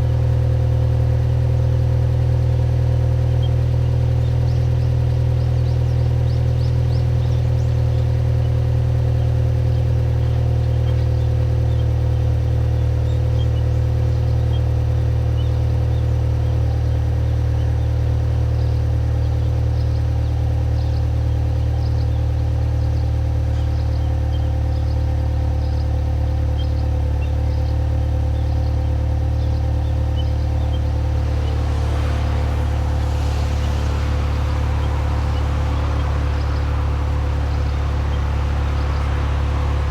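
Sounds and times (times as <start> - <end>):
car exhaust idling: 0.0 - 39.9
hissing rush: 30.4 - 39.9.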